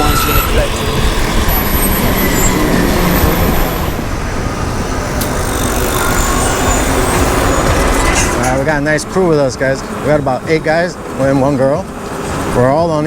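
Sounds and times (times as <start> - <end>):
wind rush: 0.0 - 10.1
road noise: 0.0 - 13.0.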